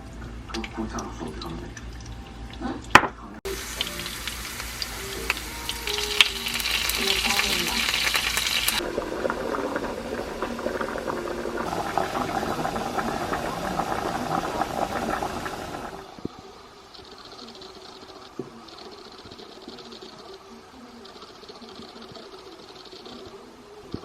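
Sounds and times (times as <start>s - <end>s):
food sizzling in a pan: 3.5s - 16.1s
utensil stirring with clicks and scrapes: 16.9s - 20.4s.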